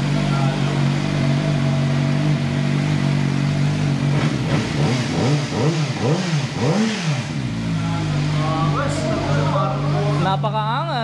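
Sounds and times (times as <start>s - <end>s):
motorcycle engine idling: 0.0s - 11.0s
motorcycle engine revving: 0.0s - 11.0s.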